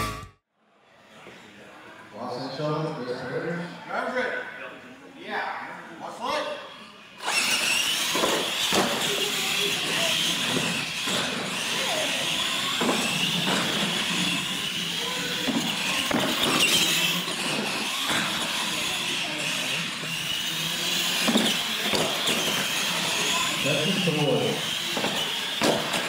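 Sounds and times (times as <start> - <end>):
toy truck motors whining: 6.9 - 26.0.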